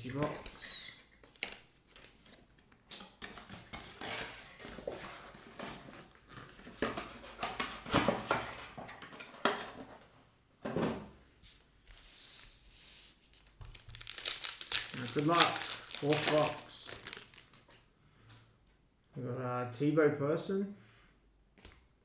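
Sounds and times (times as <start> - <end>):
packaging rustling: 12.0 - 17.8.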